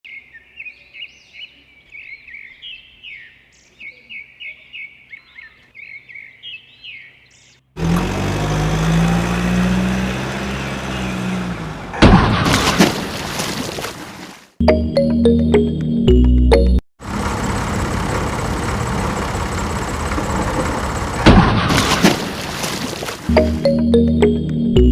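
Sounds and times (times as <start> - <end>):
birds chirping: 0.1 - 7.8, 9.9 - 11.9
vehicle engine running: 7.8 - 12.1, 17.0 - 22.6.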